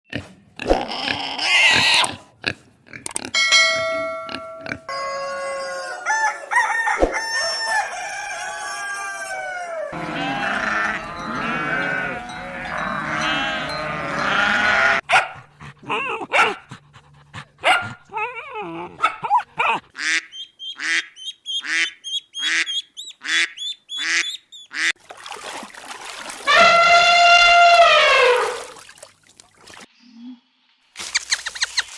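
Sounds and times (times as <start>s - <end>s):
animal cries and honks: 9.2s - 15.0s, 26.5s - 28.8s
flock chorus: 10.0s - 14.4s.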